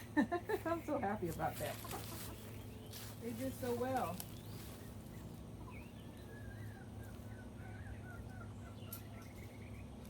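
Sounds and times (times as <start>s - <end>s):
chickens chirping softly: 0.0s - 10.0s.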